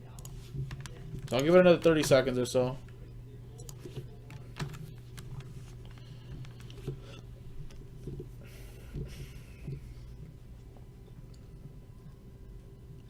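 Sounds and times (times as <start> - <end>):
steady low hum: 0.0 - 13.0
faint clicks and taps: 0.1 - 2.2, 2.8 - 8.3.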